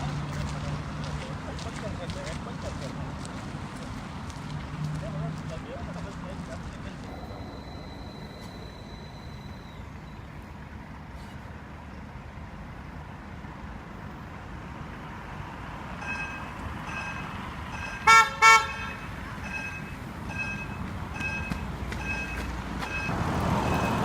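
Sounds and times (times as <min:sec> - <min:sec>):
level crossing two-tone beeps: 0:07.0 - 0:10.3, 0:18.7 - 0:24.0
tram horn blasts: 0:16.9 - 0:24.0.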